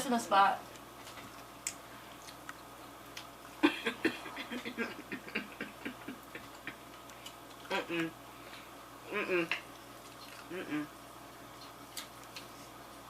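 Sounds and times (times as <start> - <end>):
person chewing crunchy food: 0.8 - 3.6, 9.7 - 10.6.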